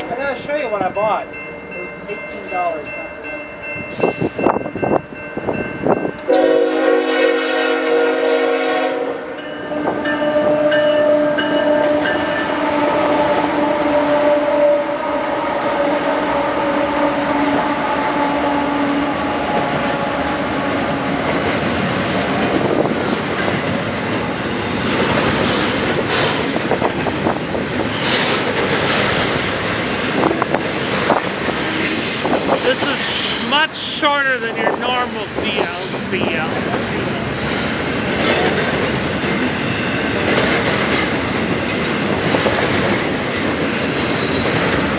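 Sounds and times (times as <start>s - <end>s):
freight train cars rumbling by: 0.0s - 44.9s
locomotive horn chord: 6.3s - 20.6s.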